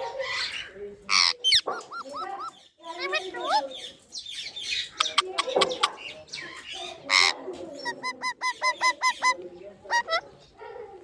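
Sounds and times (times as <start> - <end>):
parrot squawk: 0.2 - 3.6, 4.8 - 10.3
parrot clicks and chatter: 0.4 - 11.0.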